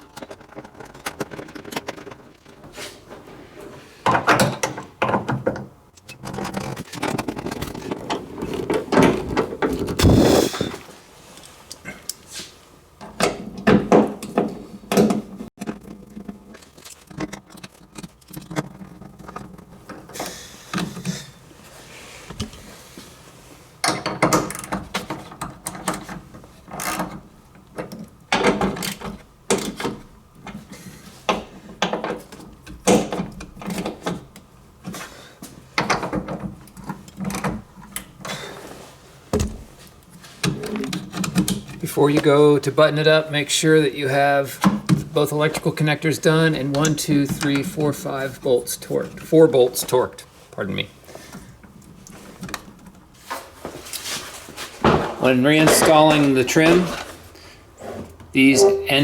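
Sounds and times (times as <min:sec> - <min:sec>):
plastic and metal parts rattling: 0:00.0 - 0:02.6, 0:04.1 - 0:10.7, 0:14.9 - 0:20.2.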